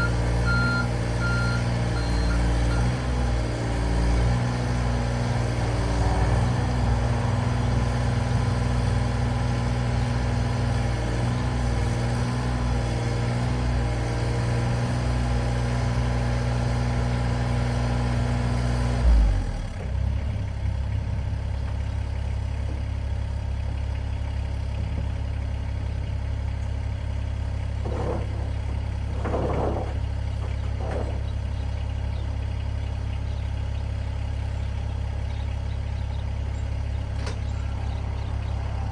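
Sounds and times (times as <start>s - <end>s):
diesel excavator engine: 0.0s - 38.9s
short knocks: 27.8s - 31.5s.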